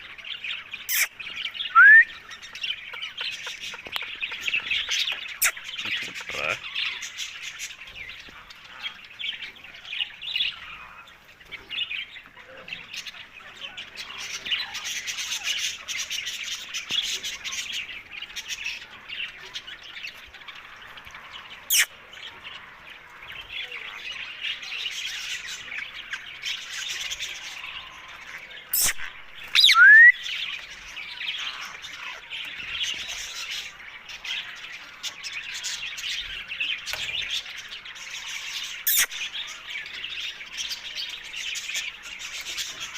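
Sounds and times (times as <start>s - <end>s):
parakeet chattering and chirping: 0.8s - 1.2s, 2.7s - 7.4s, 21.7s - 21.9s, 28.7s - 30.1s, 38.7s - 39.4s
parakeet squawk: 0.9s - 1.1s, 21.7s - 21.9s, 28.7s - 30.1s, 38.9s - 39.2s.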